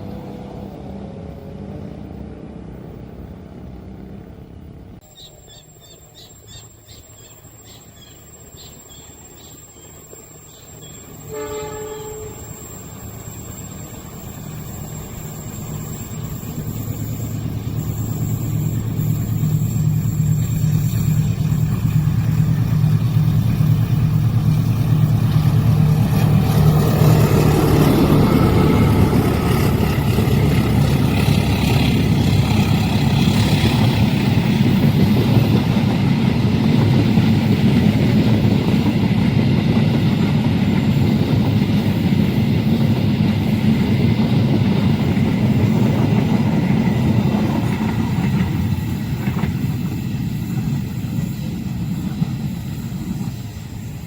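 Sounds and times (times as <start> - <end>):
locomotive engine: 0.0 - 54.0
train wheels on rails: 5.0 - 54.0
locomotive horn: 11.2 - 12.6.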